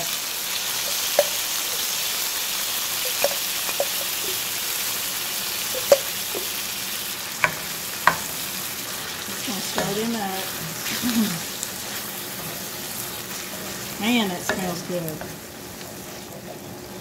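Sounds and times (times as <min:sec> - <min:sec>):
vegetables sizzling in grease: 0:00.0 - 0:17.0
wooden spoon knocking on pan: 0:00.9 - 0:01.4, 0:03.0 - 0:04.4, 0:05.7 - 0:06.6, 0:07.4 - 0:08.4, 0:14.4 - 0:15.4.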